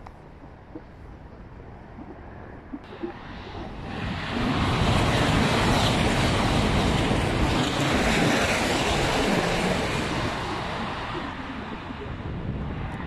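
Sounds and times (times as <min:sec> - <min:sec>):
high-speed train passing: 0:02.9 - 0:13.0.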